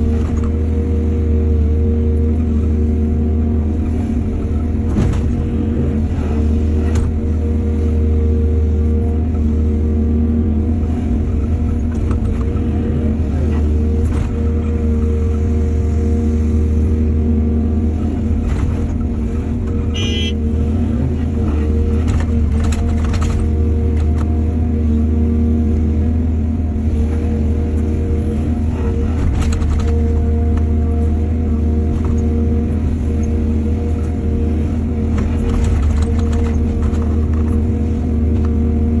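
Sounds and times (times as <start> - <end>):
diesel machinery droning: 0.0 - 39.0
short high squeak: 19.9 - 20.4.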